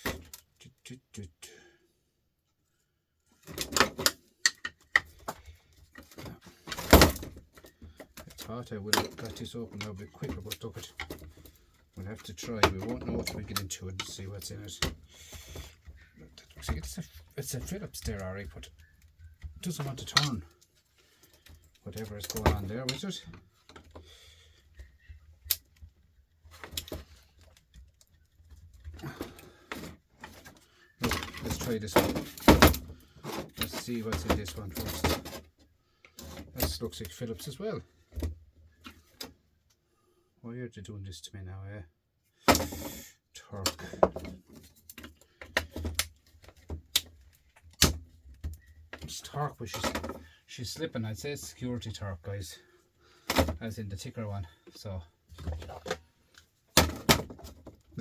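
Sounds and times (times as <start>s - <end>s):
tools clicking and knocking: 3.5s - 11.6s.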